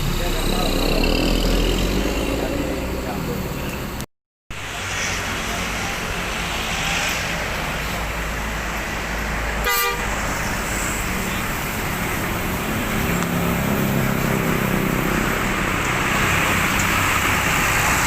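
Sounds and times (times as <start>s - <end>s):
traffic rumble: 0.0s - 18.0s
vehicle horn toot: 9.6s - 10.1s.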